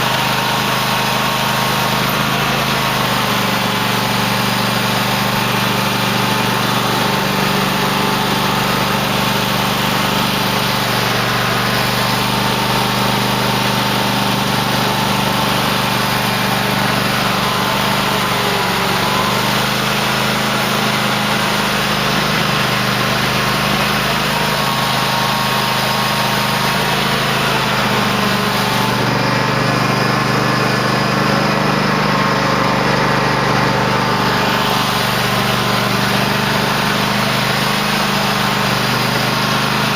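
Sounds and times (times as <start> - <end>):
lawn tractor engine running: 0.0 - 39.9.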